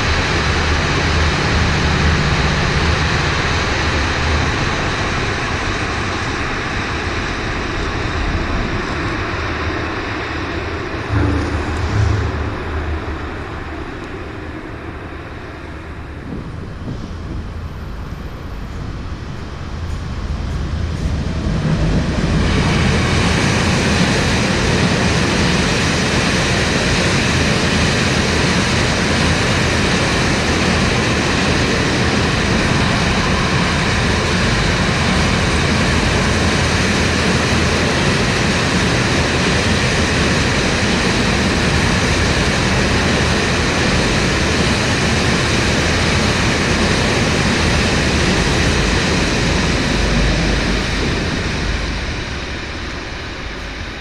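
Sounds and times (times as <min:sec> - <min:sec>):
train wheels rolling on rails: 0:10.9 - 0:15.6.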